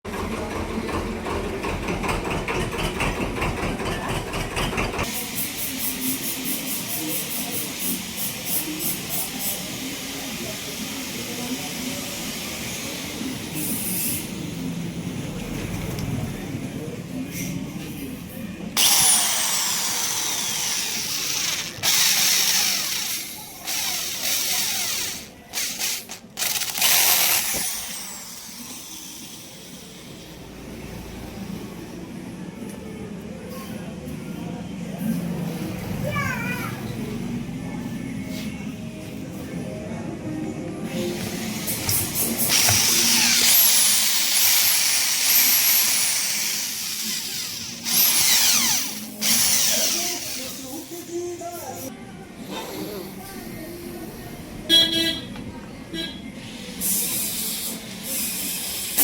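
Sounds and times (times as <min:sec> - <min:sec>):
handheld power tool whirring: 0:18.8 - 0:29.4, 0:41.7 - 0:51.0.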